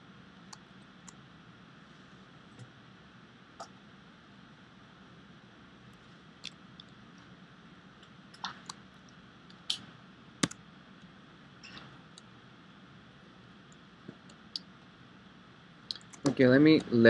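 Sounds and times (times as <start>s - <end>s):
faint room hiss: 0.0s - 17.0s
computer mouse clicks: 10.4s - 10.6s.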